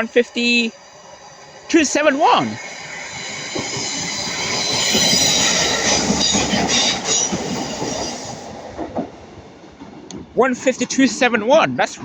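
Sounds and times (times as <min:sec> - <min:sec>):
high-pitched train tones: 0:00.0 - 0:08.8
train wheels rumbling on rails: 0:00.0 - 0:12.0.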